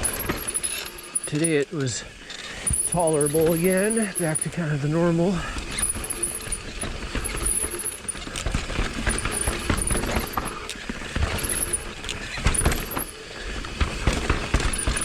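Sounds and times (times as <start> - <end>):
bike rattling over bumps: 0.0 - 1.6, 2.6 - 15.0
bike tyres on dirt: 2.6 - 15.0.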